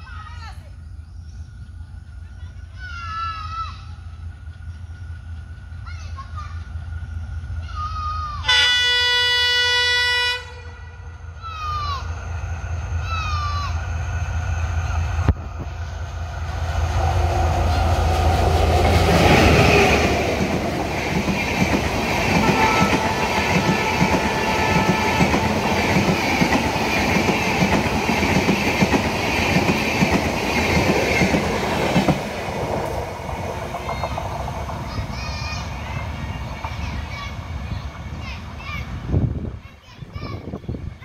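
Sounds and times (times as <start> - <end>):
diesel locomotive engine: 0.0 - 41.0
train wheels clickety-clack: 17.2 - 38.8.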